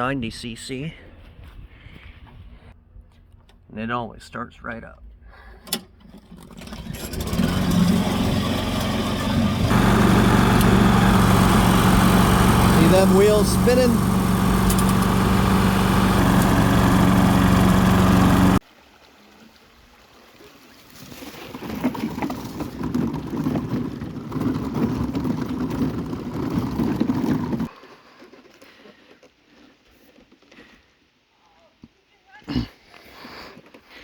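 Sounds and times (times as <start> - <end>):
lawn mower engine running: 6.5 - 18.6, 25.6 - 27.7
rough rushing noise: 7.2 - 18.6.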